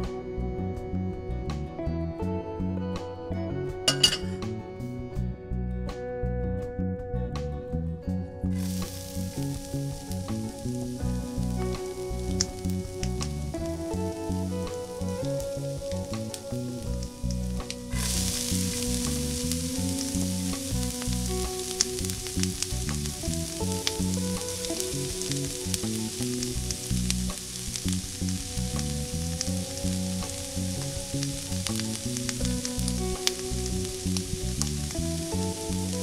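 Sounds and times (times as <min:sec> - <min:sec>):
onion and tomato sizzling in a pan: 0:03.9 - 0:04.5, 0:08.6 - 0:36.0.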